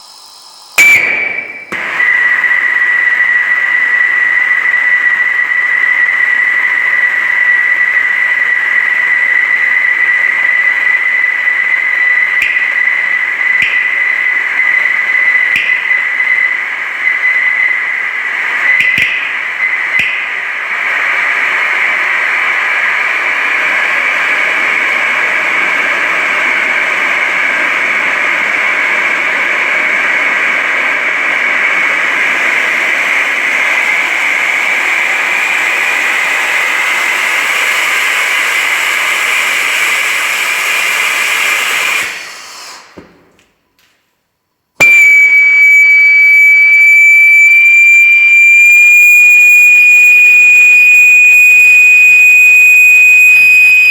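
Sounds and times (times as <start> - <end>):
piercing whistle: 0.0 - 27.8, 28.4 - 43.2, 44.8 - 53.9
rocket engine rushing hiss: 0.0 - 30.6, 31.9 - 43.2.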